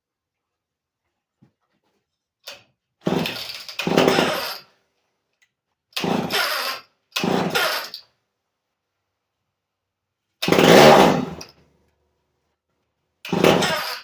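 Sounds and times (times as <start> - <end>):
engine turning over: 3.0 - 4.6, 10.4 - 11.5
chainsaw recoil starter pulls: 3.1 - 4.6, 6.0 - 8.0, 10.4 - 11.6, 13.3 - 14.0.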